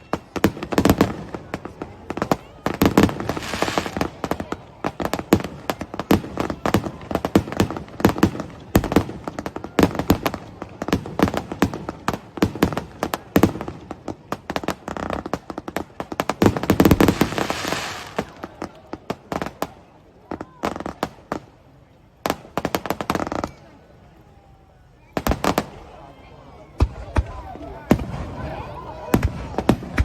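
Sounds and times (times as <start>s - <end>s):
fireworks bangs and crackles: 0.0s - 24.0s, 25.0s - 30.0s.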